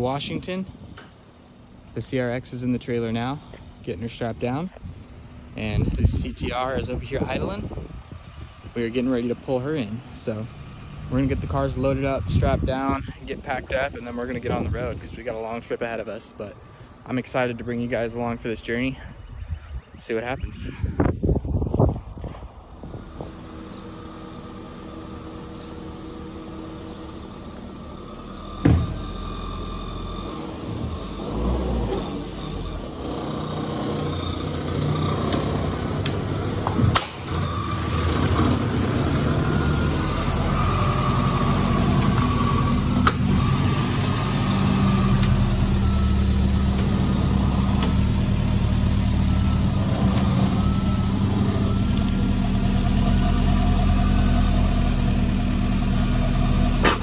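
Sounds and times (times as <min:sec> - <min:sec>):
car engine idling: 0:22.5 - 0:57.0
sharp knocks: 0:28.6 - 0:29.1.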